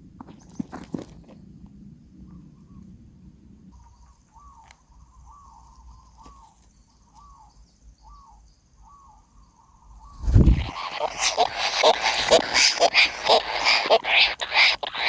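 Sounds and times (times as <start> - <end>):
faint short animal calls: 10.2 - 15.0.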